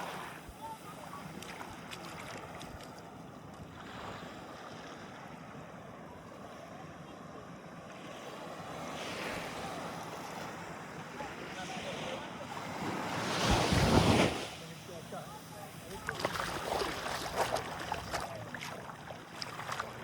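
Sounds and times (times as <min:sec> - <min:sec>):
small waves washing in: 0:00.0 - 0:20.0
wind rumbling on microphone: 0:12.9 - 0:14.4.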